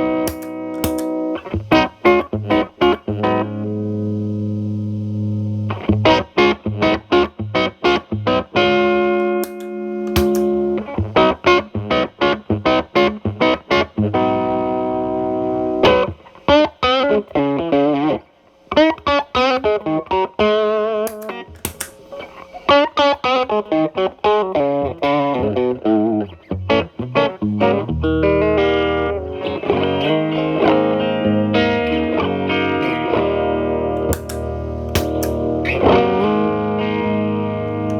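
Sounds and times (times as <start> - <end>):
distorted electric guitar: 0.0 - 16.2, 16.8 - 37.9.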